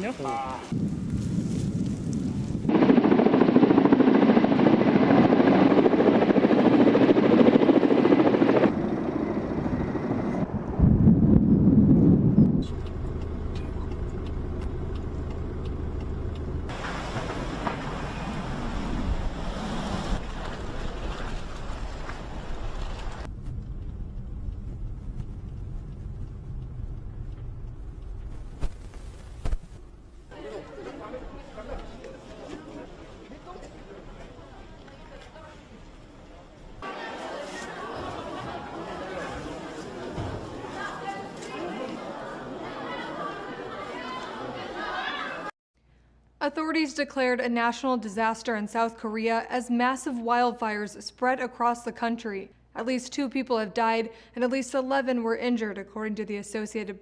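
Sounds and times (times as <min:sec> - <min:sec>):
helicopter rotor chopping: 0:02.7 - 0:19.4
low steady rumble: 0:08.7 - 0:30.3.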